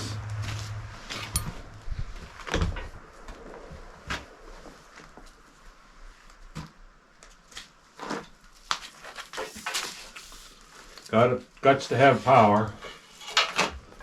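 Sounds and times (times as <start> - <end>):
metal clinks: 1.2 - 1.6
tools and metal parts clicking: 1.2 - 1.6.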